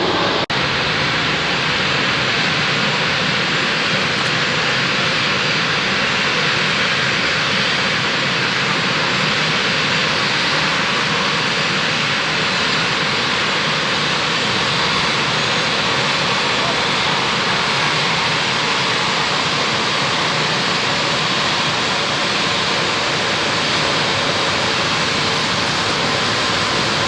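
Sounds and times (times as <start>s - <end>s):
jet engines rushing: 0.0s - 27.0s.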